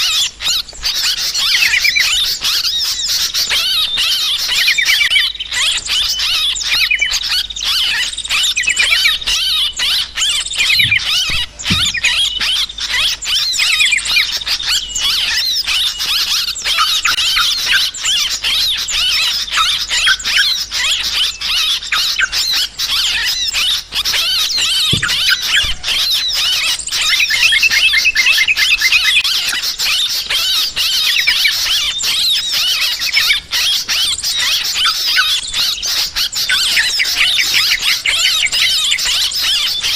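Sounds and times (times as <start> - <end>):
flock of bulbuls chattering: 0.0 - 39.9.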